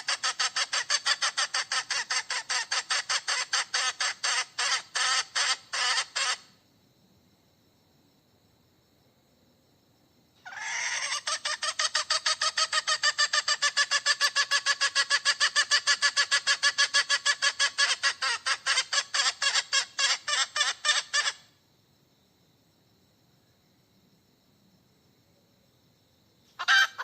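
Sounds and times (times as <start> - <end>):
hen cackling: 0.0 - 6.5, 10.4 - 21.5, 26.5 - 27.0.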